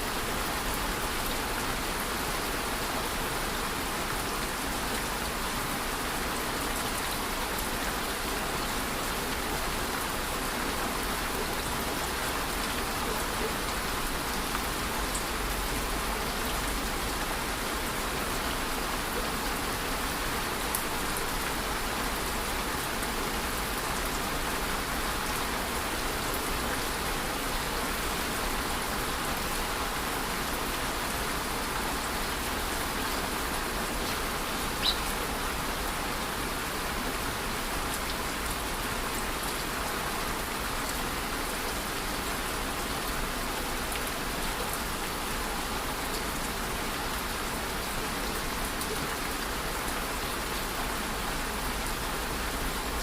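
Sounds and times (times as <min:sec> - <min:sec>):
rain pattering: 0:00.1 - 0:53.0.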